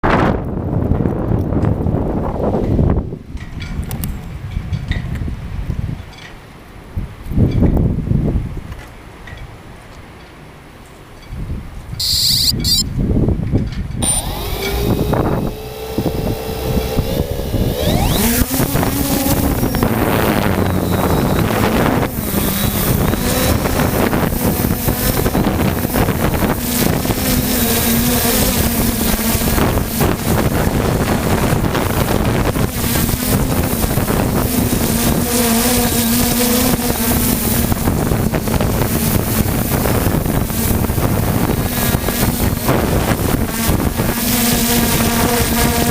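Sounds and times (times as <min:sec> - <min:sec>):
wind buffeting microphone: 0:00.0 - 0:09.6, 0:11.2 - 0:45.9
drone motors humming: 0:12.0 - 0:12.8, 0:14.0 - 0:45.9
short high beep: 0:12.0 - 0:12.9, 0:14.0 - 0:14.3.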